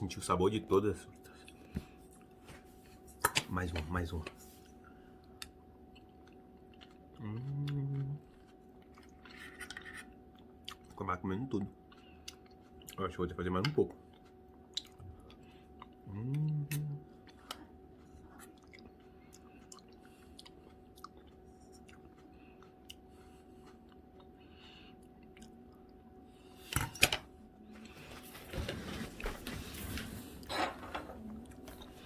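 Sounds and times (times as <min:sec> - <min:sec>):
person chewing: 0:05.2 - 0:11.0, 0:11.6 - 0:13.1, 0:14.0 - 0:26.6
clattering and rustling: 0:27.8 - 0:32.0.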